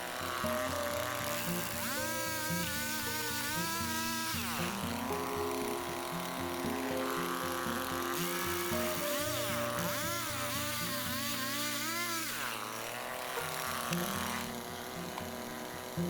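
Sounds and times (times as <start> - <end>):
background music with held notes: 0.0 - 16.0
chainsaw revving: 0.0 - 16.0.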